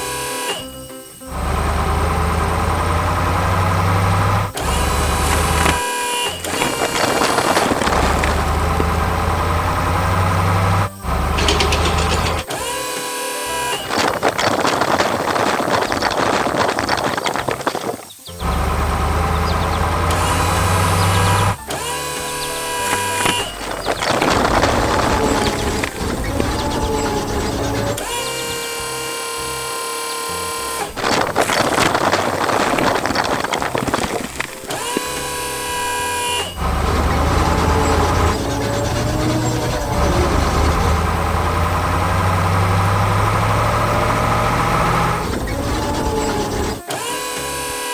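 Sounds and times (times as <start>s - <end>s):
heavy engine idling: 0.0s - 14.0s, 18.3s - 47.9s
mechanical whine: 0.0s - 47.9s
dense crackling clatter: 1.5s - 12.7s, 13.7s - 28.6s, 30.7s - 46.9s
vehicle horn: 4.2s - 14.0s, 18.4s - 30.9s.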